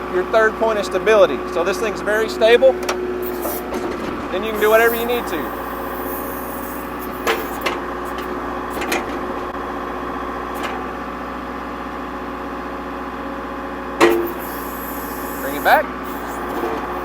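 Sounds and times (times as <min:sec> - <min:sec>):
diesel engine running: 0:00.0 - 0:17.0
machine knocks: 0:14.0 - 0:14.4.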